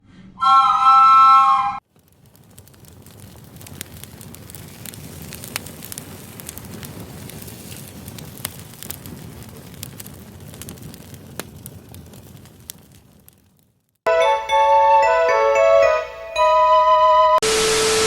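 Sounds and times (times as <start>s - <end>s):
crackling hiss: 1.8s - 14.0s.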